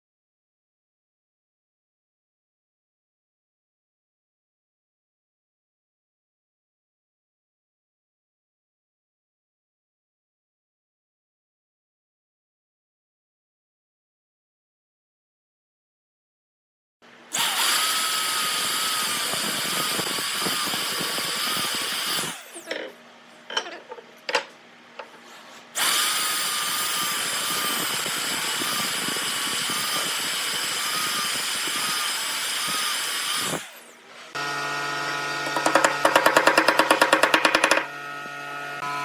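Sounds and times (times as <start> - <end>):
power tool whining on wood: 17.3 - 23.0, 25.2 - 39.0.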